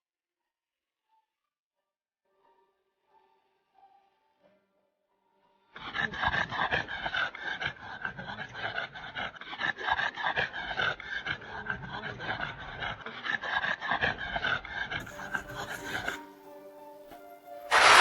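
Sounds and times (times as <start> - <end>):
dog panting: 5.8 - 16.2, 17.7 - 18.0.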